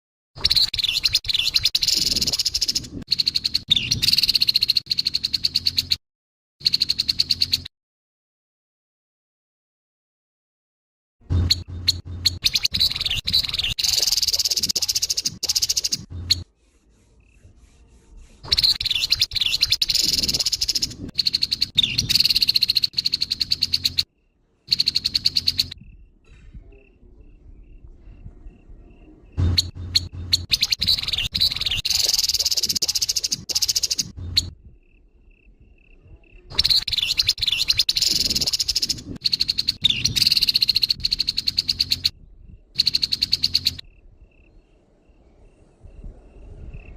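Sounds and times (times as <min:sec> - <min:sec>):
bird harsh rasping calls: 0:11.4 - 0:24.1, 0:24.7 - 0:25.8, 0:29.4 - 0:34.5, 0:35.4 - 0:42.1.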